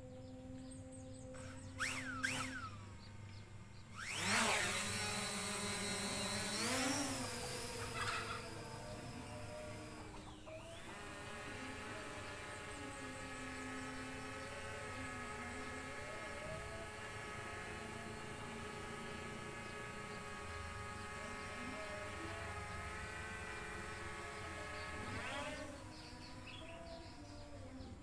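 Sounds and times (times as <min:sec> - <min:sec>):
drone motors whining: 0:00.0 - 0:28.0.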